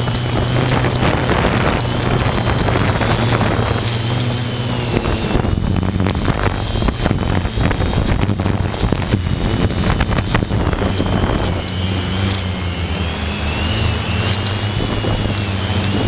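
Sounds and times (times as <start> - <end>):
drone motor hum: 0.0 - 16.0
wind buffeting microphone: 0.0 - 16.0.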